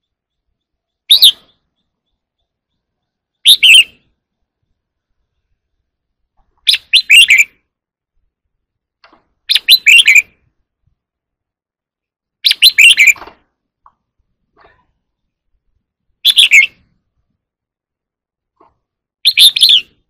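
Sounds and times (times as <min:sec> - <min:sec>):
bird singing whistled notes: 0:00.0 - 0:04.8, 0:06.7 - 0:07.6, 0:09.5 - 0:10.3, 0:12.4 - 0:13.2, 0:16.2 - 0:16.8, 0:19.2 - 0:20.0.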